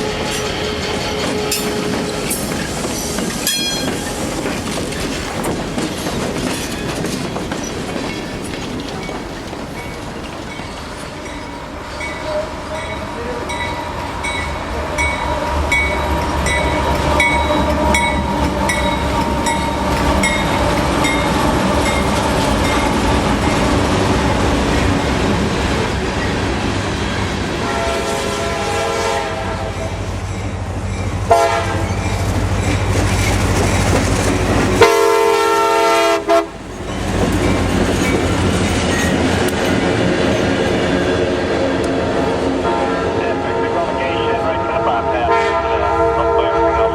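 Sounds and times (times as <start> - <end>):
train air horn blasts: 0.0 - 2.4, 27.6 - 30.0, 31.3 - 31.9, 34.8 - 36.5, 41.8 - 46.9
train rumbling on rails: 0.0 - 46.9.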